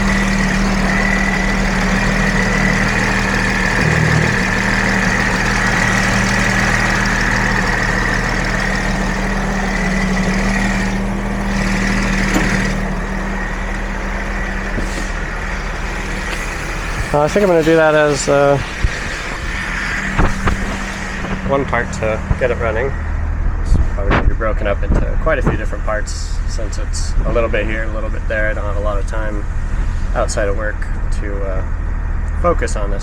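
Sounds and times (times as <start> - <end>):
high whine: 0.0 - 31.3
diesel engine idling: 0.0 - 33.0.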